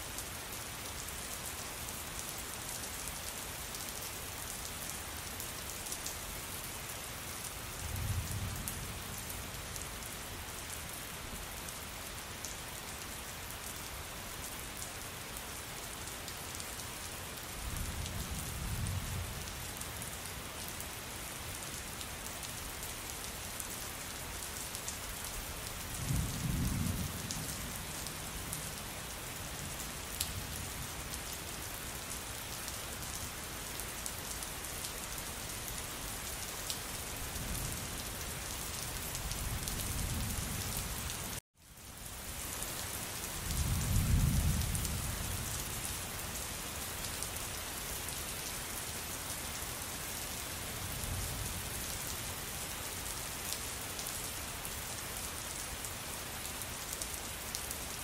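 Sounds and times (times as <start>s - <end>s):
steady rain falling: 0.0s - 58.0s
low rumbles of thunder: 26.0s - 28.7s, 43.5s - 45.5s.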